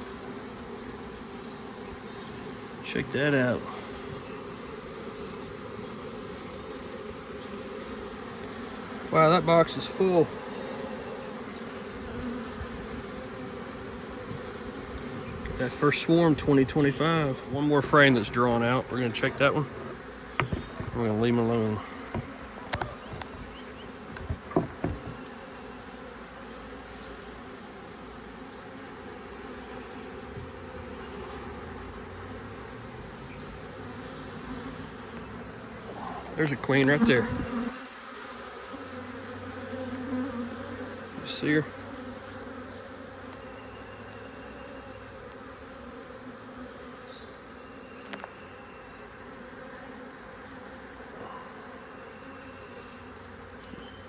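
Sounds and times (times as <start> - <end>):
bee swarm buzzing: 0.0 - 54.0
sharp knocks: 19.8 - 21.2, 22.0 - 23.3, 24.1 - 25.2.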